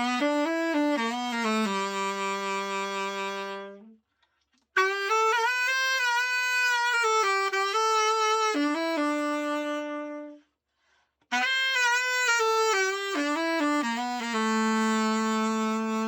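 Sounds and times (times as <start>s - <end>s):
tenor saxophone solo: 0.0s - 4.0s, 4.8s - 10.5s, 11.3s - 16.0s
breath: 4.0s - 4.7s, 10.4s - 11.3s.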